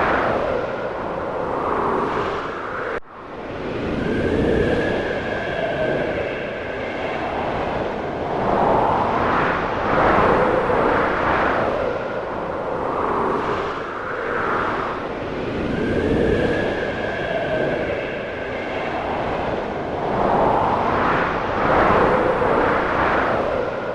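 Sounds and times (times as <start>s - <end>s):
wind howling and whistling: 0.0s - 23.9s.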